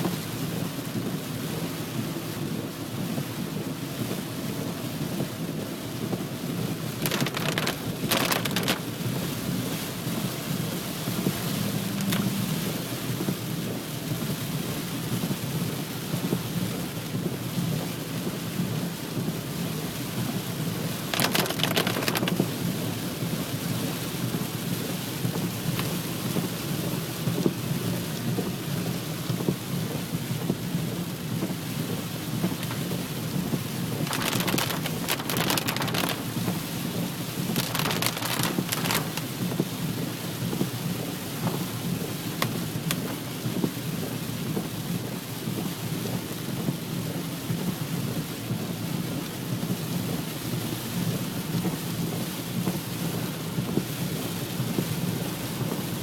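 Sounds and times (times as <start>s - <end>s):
heavy rain pouring: 0.0s - 56.0s
crackling bursts: 6.8s - 9.0s, 11.2s - 13.1s, 21.0s - 22.5s, 32.4s - 39.7s.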